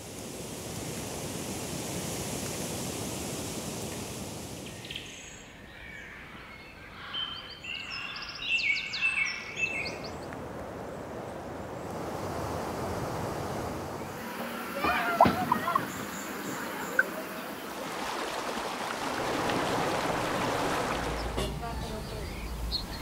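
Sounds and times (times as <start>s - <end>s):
steady rushing hiss: 0.0s - 4.9s, 11.8s - 18.9s
outdoor background: 0.0s - 23.0s
songbird singing: 4.6s - 12.0s, 13.5s - 18.0s, 20.3s - 23.0s.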